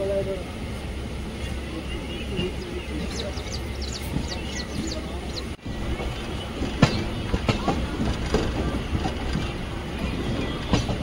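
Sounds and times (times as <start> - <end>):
train rumbling: 0.0 - 11.0
wheels clattering over rail joints: 2.5 - 11.0.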